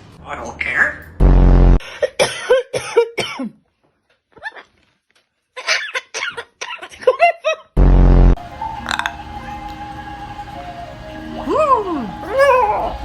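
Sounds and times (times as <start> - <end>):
low buzz: 1.2 - 1.8, 7.8 - 9.4.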